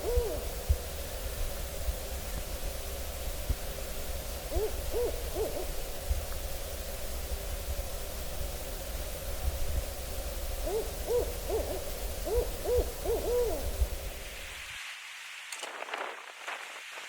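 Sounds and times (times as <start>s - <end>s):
owl hooting: 0.0s - 0.8s, 4.4s - 5.9s, 10.6s - 14.4s.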